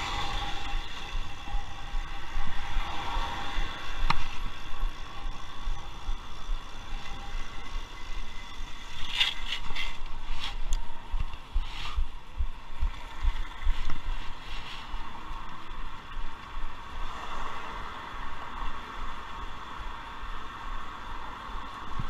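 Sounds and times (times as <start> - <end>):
wind buffeting microphone: 0.0 - 19.2
cars passing: 0.0 - 22.0.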